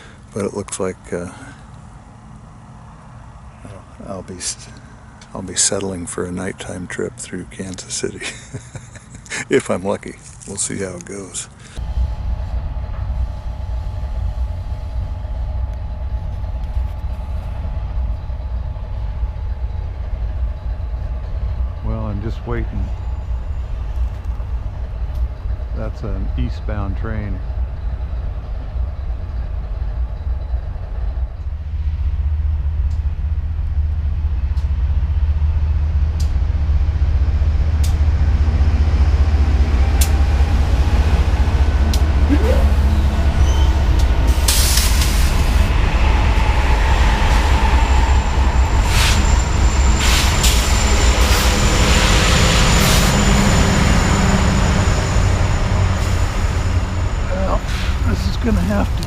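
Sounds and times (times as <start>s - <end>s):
freight train rumbling by: 0.0s - 59.0s
wheel squeal: 42.7s - 58.3s.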